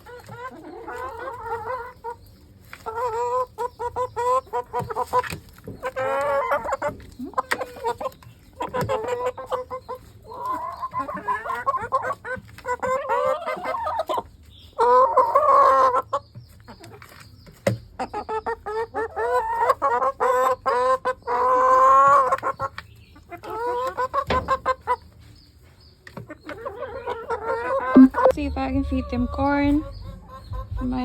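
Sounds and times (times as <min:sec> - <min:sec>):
hens clucking: 0:00.0 - 0:31.0.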